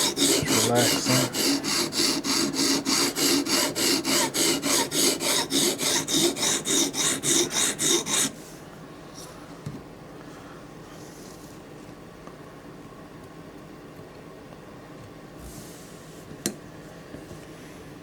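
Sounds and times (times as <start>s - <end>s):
sharpening stone rasping on blade: 0.0s - 8.3s.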